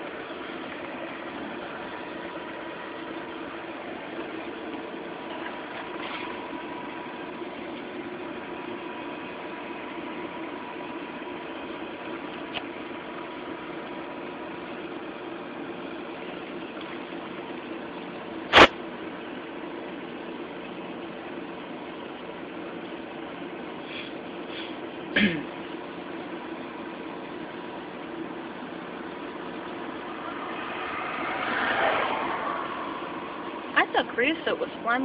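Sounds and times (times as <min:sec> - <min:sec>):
fire engine motor idling: 0:00.0 - 0:30.3
sharp click: 0:18.5 - 0:18.7.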